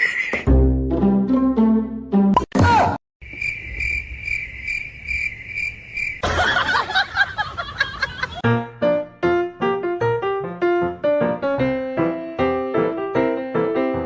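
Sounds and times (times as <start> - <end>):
cricket trilling: 3.2 - 6.2.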